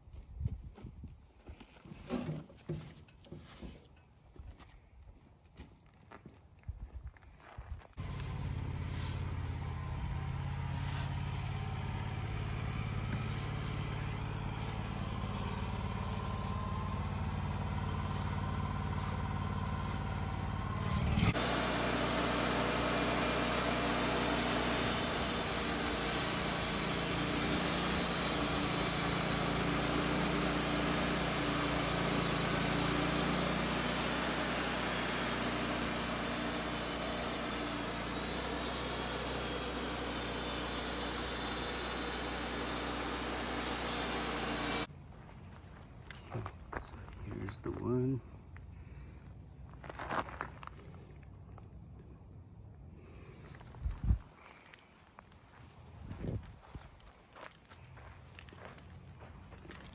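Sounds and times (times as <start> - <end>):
sawmill engine running: 8.0 - 44.9.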